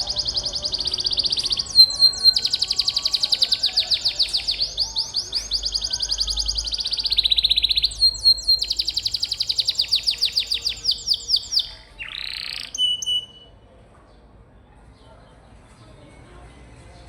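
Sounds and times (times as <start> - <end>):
canary trilling: 0.0 - 13.5.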